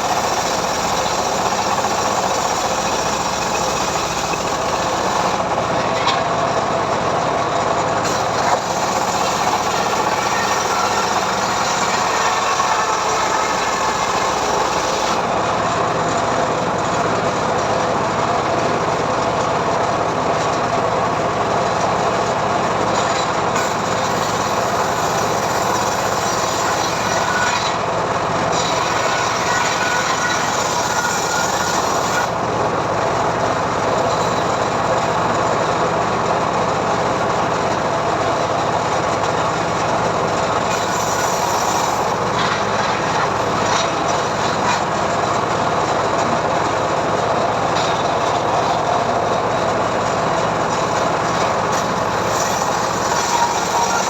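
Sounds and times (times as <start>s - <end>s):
saw blade ripping through wood: 0.0s - 5.5s, 8.0s - 15.4s, 23.6s - 27.8s, 28.5s - 32.4s, 40.7s - 44.9s, 50.8s - 54.0s.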